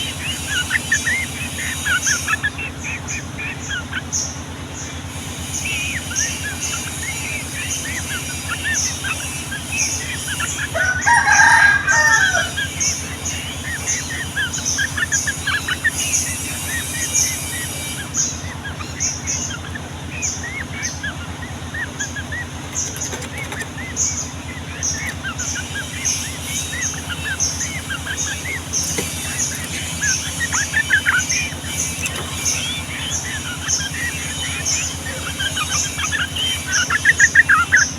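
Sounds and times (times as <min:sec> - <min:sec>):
bulbuls chattering: 0:00.0 - 0:37.9
rooster crowing: 0:10.3 - 0:14.1.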